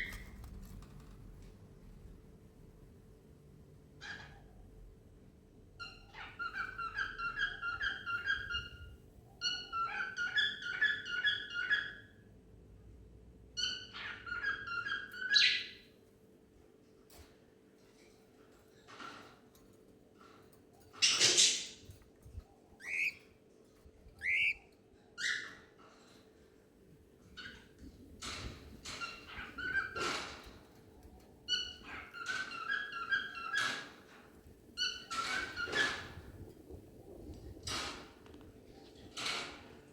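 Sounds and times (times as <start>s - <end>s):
cockatiels whistling and chattering: 5.8s - 12.0s, 22.8s - 23.2s, 24.2s - 24.6s, 31.5s - 33.8s
cockatiel whistling: 22.8s - 23.2s, 24.2s - 24.6s.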